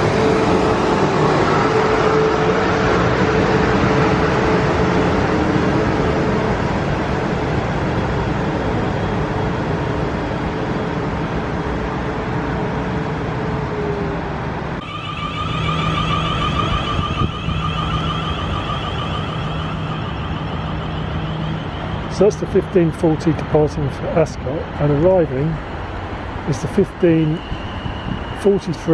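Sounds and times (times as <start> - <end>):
electric train rumbling with whine: 0.0 - 28.9
steady tones: 14.8 - 28.9.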